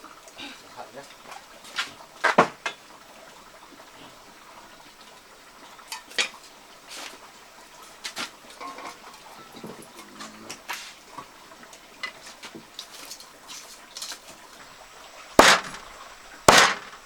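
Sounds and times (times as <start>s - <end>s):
cooking utensils and dishes clinking: 5.8s - 6.5s, 8.5s - 11.3s, 12.0s - 14.4s.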